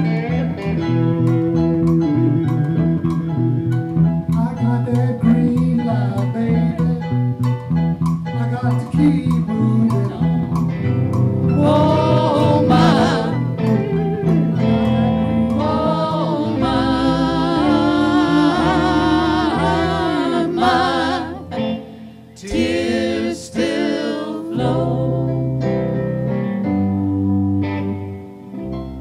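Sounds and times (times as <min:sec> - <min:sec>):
bass guitar: 0:00.0 - 0:29.0
electric guitar: 0:00.0 - 0:29.0
wordless vocal with vibrato: 0:11.6 - 0:25.6.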